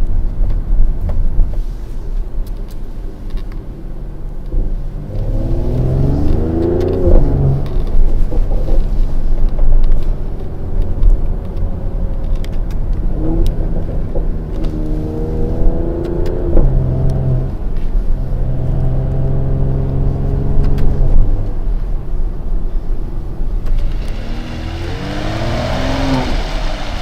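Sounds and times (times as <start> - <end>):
car engine accelerating: 1.9 - 27.0.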